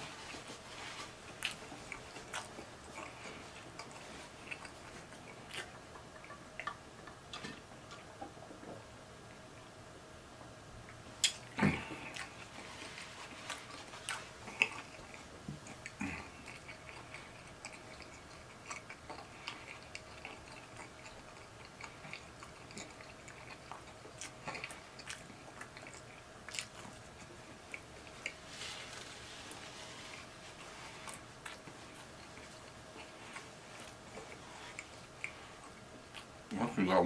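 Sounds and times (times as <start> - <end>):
person chewing and swallowing: 0.0 - 8.9, 10.9 - 36.5
mouth clicks and smacks: 11.2 - 12.4.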